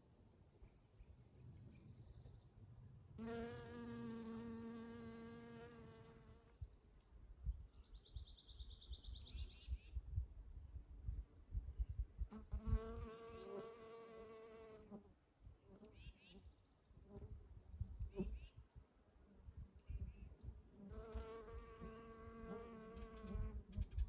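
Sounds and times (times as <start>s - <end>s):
bee buzzing: 3.2s - 6.5s, 12.4s - 14.9s, 20.9s - 23.6s.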